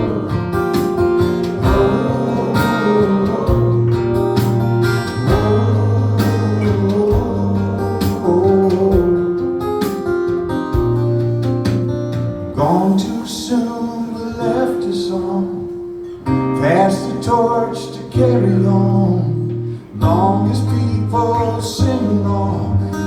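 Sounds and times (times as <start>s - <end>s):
sustained bass line: 0.0s - 9.5s
strummed acoustic guitar: 0.0s - 23.0s.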